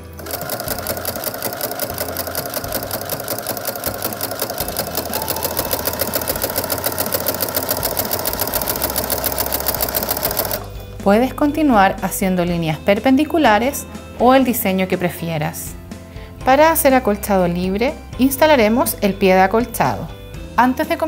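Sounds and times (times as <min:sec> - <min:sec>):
sewing machine needle clatter: 0:00.2 - 0:10.7
motor whine: 0:04.7 - 0:10.4.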